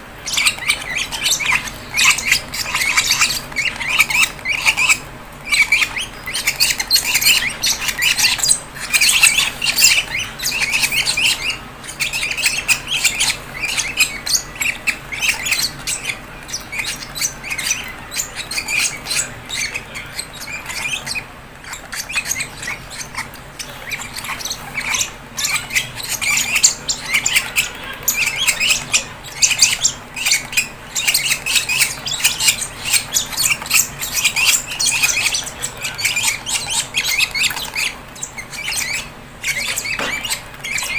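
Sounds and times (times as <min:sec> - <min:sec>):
lovebirds squawking and chirping: 0:00.0 - 0:40.9.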